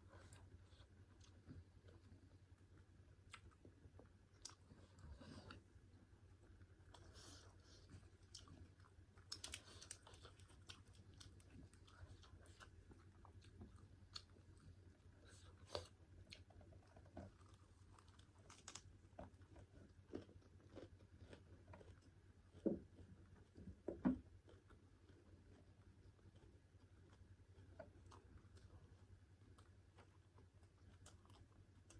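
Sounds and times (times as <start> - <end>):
chewing and wet mouth clicks: 3.2 - 5.6, 8.2 - 14.7.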